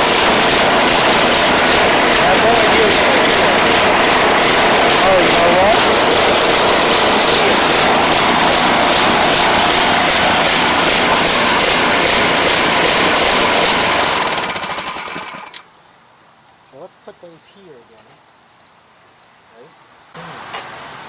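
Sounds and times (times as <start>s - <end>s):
snowblower engine running: 0.0s - 15.6s.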